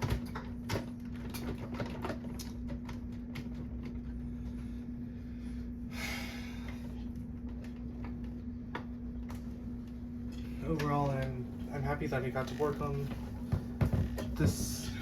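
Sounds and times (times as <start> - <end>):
upright vacuum running: 10.4 - 15.0.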